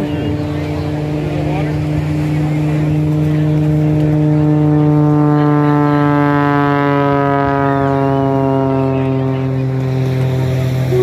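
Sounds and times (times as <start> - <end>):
motor engine droning past: 0.0 - 11.0.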